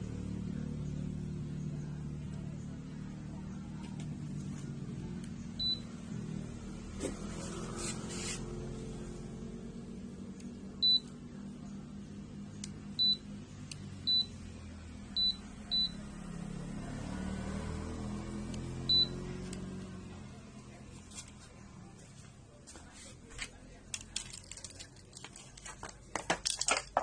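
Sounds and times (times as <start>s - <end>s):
washing machine button beeps: 5.6s - 5.8s, 10.8s - 11.1s, 13.0s - 13.2s, 18.9s - 19.2s.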